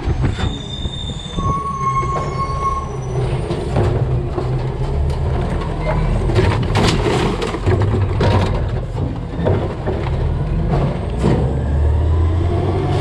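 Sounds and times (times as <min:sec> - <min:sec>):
garbage truck engine running: 0:02.9 - 0:13.0
sharp knocks and clatters: 0:03.4 - 0:11.5.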